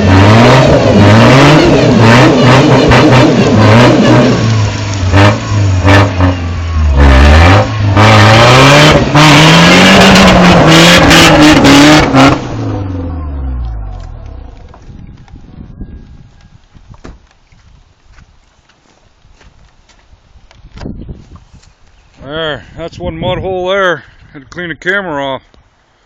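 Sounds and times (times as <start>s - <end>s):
truck engine revving: 0.0s - 14.8s
tires spinning in mud: 0.0s - 18.4s.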